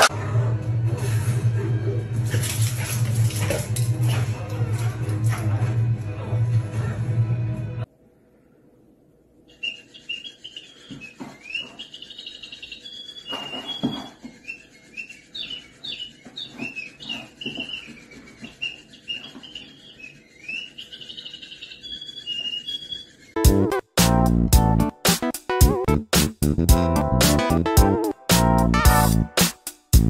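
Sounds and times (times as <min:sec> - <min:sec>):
small bird chirping: 0:09.5 - 0:23.4.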